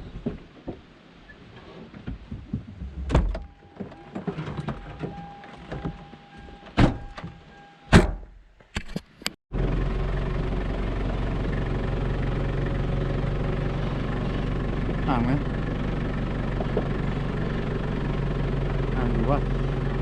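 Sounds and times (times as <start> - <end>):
vehicle engine and road noise: 0.0 - 20.0
knocks and rattles: 1.9 - 7.4.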